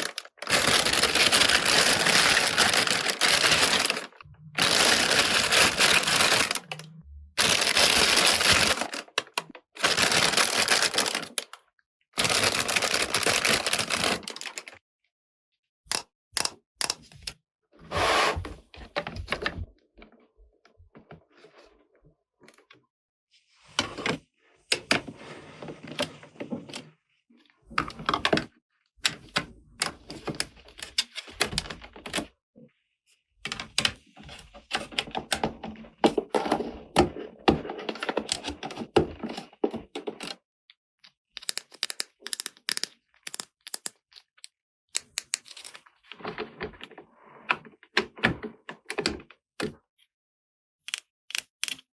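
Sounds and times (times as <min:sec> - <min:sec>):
packaging rustling: 0:00.0 - 0:06.8, 0:07.4 - 0:11.5, 0:12.2 - 0:14.7
plastic toy pieces clicking: 0:41.3 - 0:45.8, 0:50.8 - 0:51.9.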